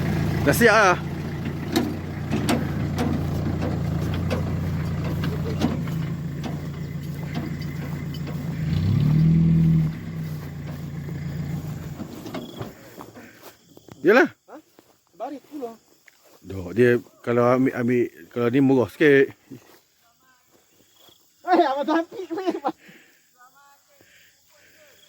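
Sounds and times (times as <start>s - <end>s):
engine idling: 0.0s - 13.1s
light knocks and clicks: 1.4s - 8.6s.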